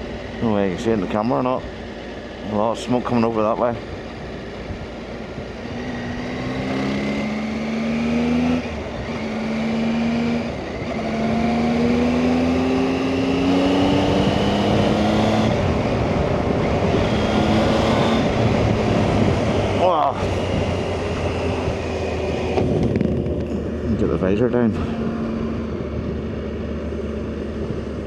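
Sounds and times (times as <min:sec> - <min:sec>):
motorcycle engine shifting gears: 0:00.0 - 0:28.0
wind rushing: 0:12.8 - 0:23.9.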